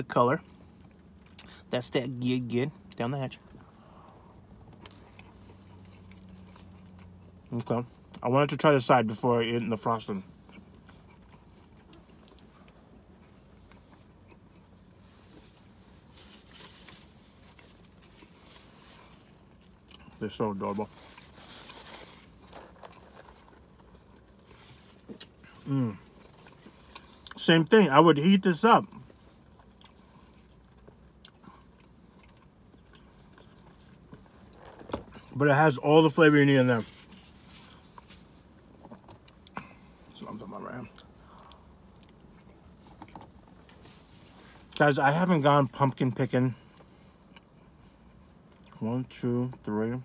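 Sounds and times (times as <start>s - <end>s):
chewing soft food: 3.4s - 8.2s, 10.2s - 27.4s, 28.8s - 35.4s, 37.0s - 44.8s.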